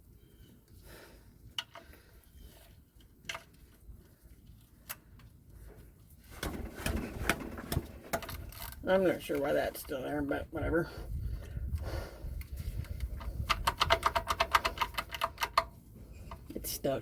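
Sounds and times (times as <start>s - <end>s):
rattling and scraping of parts: 1.5s - 10.0s, 11.4s - 16.6s
tools clicking and knocking: 12.8s - 15.7s.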